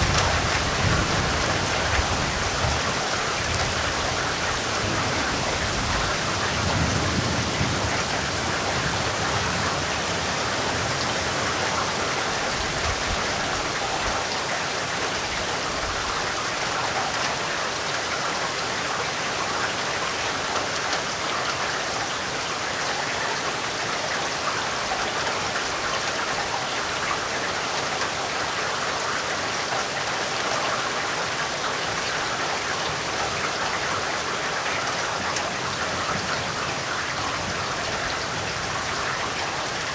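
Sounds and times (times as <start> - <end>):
dense rain pattering: 0.0 - 39.9.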